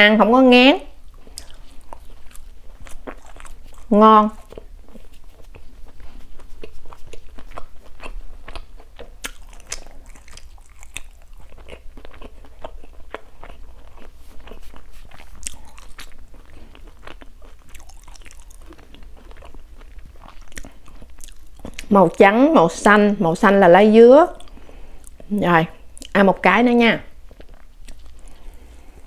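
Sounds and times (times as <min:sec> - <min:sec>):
chewing mouth clicks and smacks: 0:01.1 - 0:21.9, 0:27.3 - 0:28.5.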